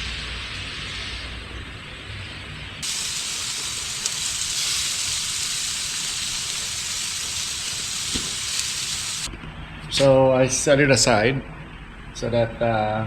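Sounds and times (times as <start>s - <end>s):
meat sizzling on a grill: 2.8s - 9.3s.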